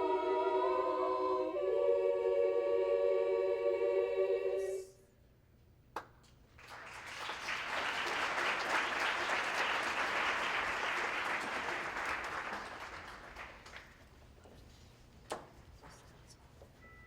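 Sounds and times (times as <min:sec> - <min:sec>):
audience applauding: 0:06.5 - 0:14.1.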